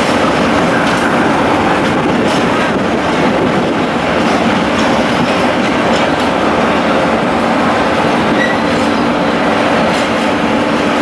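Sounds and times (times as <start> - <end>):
train wheels on rails: 0.0 - 11.0
high wheel squeal: 8.3 - 9.1.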